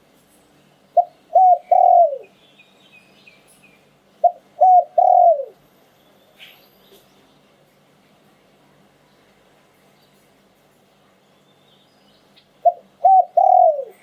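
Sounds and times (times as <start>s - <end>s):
small birds chirping: 0.4s - 7.6s, 11.1s - 14.0s
dove cooing: 1.0s - 2.3s, 4.2s - 5.6s, 12.6s - 14.0s.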